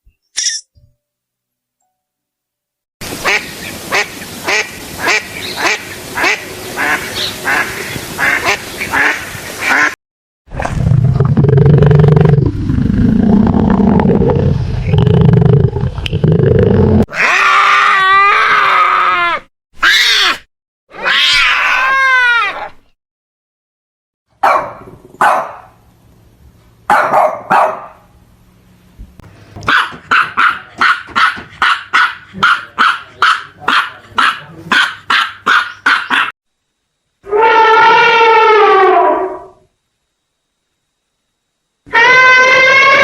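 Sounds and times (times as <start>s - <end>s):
falling animal calls: 17.0s - 22.8s, 37.2s - 39.6s, 41.9s - 43.0s
bark-like animal calls: 24.4s - 25.8s, 26.9s - 28.0s, 29.6s - 36.3s
short yelping calls: 34.8s - 36.3s.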